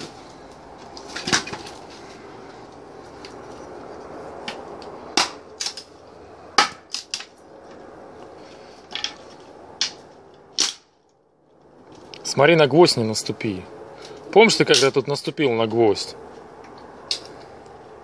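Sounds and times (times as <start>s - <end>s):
firewood cracking: 0.0s - 12.3s.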